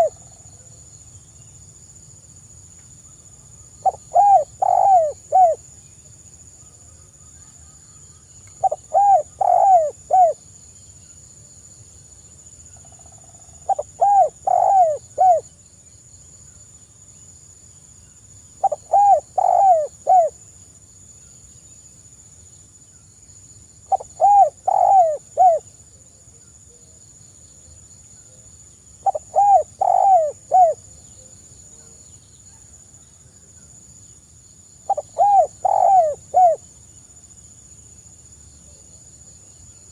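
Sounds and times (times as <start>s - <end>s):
dove cooing: 0.0s - 0.2s, 3.8s - 5.6s, 8.6s - 10.4s, 13.6s - 15.4s, 18.6s - 20.4s, 23.9s - 25.6s, 29.0s - 30.9s, 34.9s - 36.6s.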